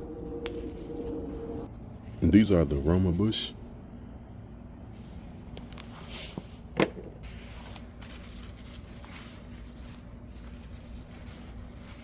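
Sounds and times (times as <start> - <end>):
plants rustling: 7.3 - 12.0.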